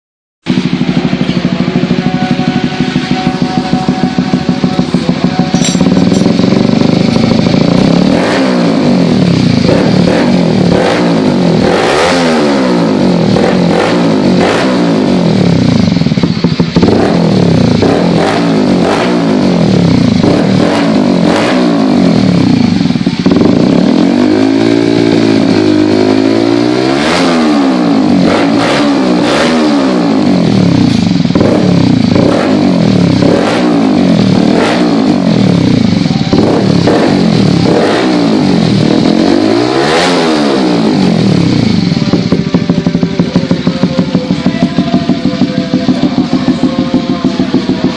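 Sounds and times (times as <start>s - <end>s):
motorcycle engine revving: 0.4s - 47.9s.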